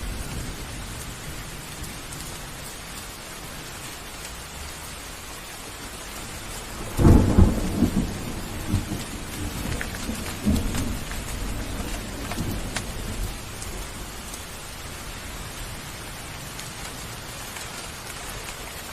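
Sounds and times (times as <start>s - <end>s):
heavy rain: 0.0s - 18.9s
deep rumbling thunderclap: 6.3s - 15.8s.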